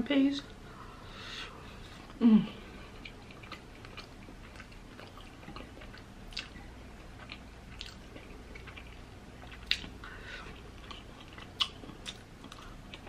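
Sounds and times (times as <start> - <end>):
chewing food: 1.7 - 13.0
person humming: 2.2 - 2.6.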